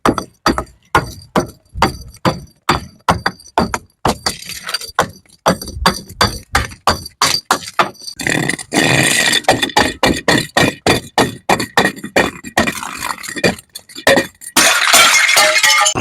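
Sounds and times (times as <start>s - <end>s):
glass bottles clinking: 11.4s - 16.0s
glass breaking: 12.8s - 16.0s.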